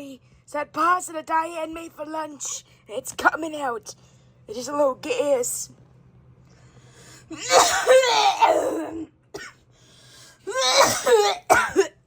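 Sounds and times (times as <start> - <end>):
person coughing hoarsely: 7.3 - 9.6, 10.5 - 12.0.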